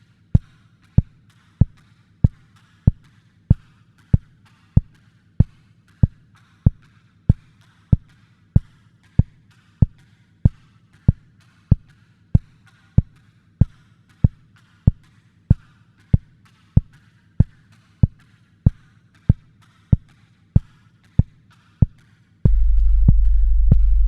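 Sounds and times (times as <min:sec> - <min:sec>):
deep kick drum thumping: 0:22.5 - 0:24.0
faint low drone: 0:22.5 - 0:24.0
loud deep bass note: 0:22.5 - 0:24.0.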